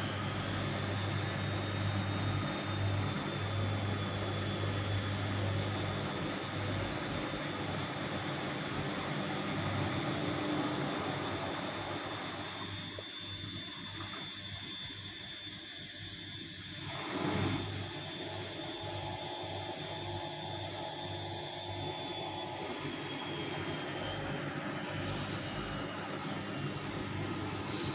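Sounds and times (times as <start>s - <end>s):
washing machine running: 0.0s - 15.4s, 16.0s - 27.9s.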